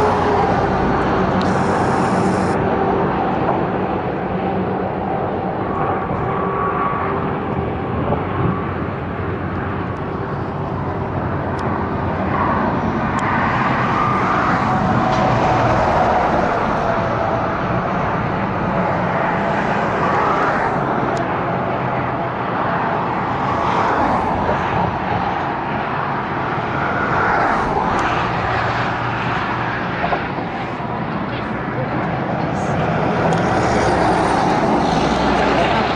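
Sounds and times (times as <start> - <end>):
roar of tyres and engines: 0.0 - 35.9
vehicles passing on highway: 0.0 - 35.9
wind noise on microphone: 0.0 - 35.9.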